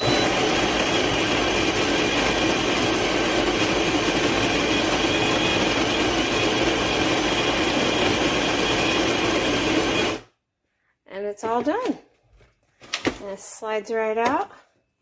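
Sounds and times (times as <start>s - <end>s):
coffee grinder motor whir: 0.0s - 10.3s.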